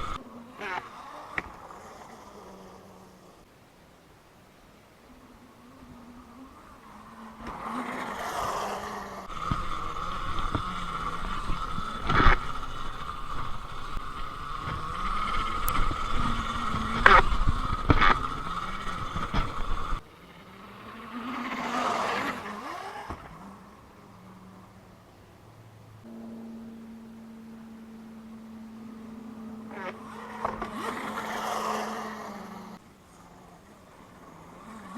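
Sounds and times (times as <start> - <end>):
wind or tyre noise rushes: 0.0 - 0.2, 4.8 - 26.1
electric motor whining: 0.0 - 3.4, 5.1 - 25.0, 26.0 - 34.9.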